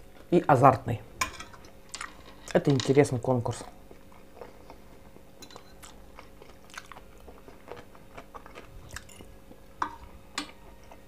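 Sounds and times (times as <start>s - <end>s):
faint hum: 0.0s - 11.0s
person chewing food: 3.7s - 11.0s.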